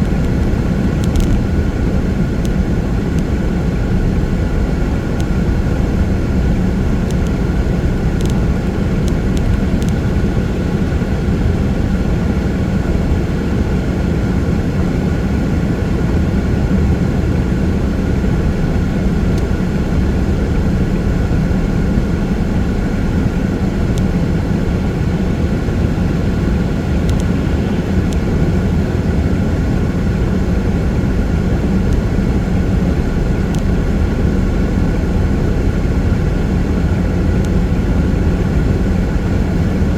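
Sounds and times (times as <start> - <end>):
faint ticks: 0.0 - 1.5, 7.0 - 10.5, 27.0 - 28.3, 33.5 - 33.7
faint steady hum: 0.0 - 39.9
tyre and engine road noise: 0.0 - 39.9.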